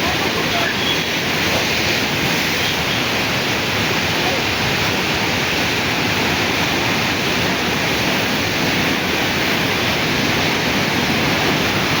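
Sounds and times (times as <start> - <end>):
river floodwater rushing: 0.0 - 12.0.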